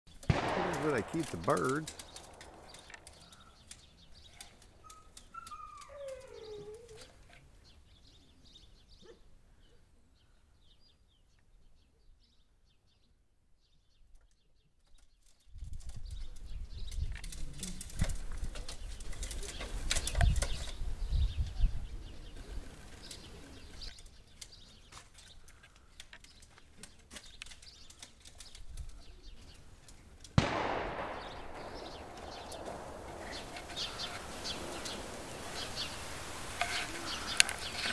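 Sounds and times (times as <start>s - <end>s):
sharp clicks: 0.1s - 5.9s, 29.9s - 37.9s
birds chirping and calling: 0.1s - 9.8s, 16.0s - 37.9s
steady hiss: 30.4s - 37.9s
wings flapping: 31.2s - 37.9s.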